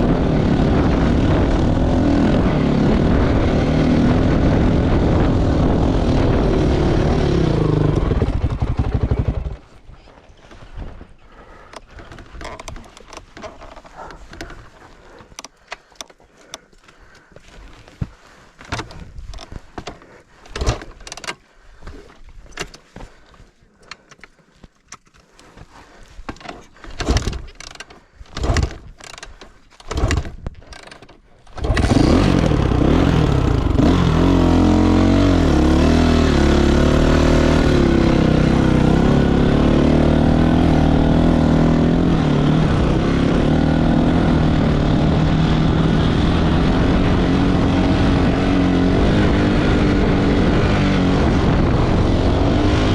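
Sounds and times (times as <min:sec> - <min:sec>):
loud engine running: 0:00.0 - 0:09.7, 0:31.6 - 0:52.9.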